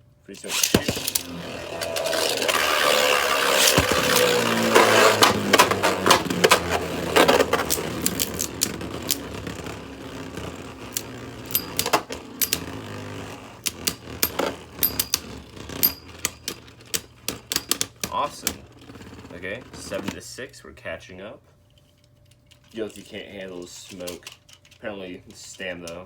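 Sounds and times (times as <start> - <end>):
spinning tops whirring: 0.4 - 20.0.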